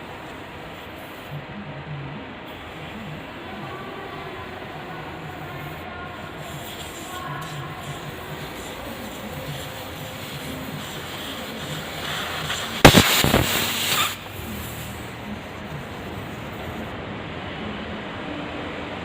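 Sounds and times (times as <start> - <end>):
hissing noise: 2.4 - 17.0.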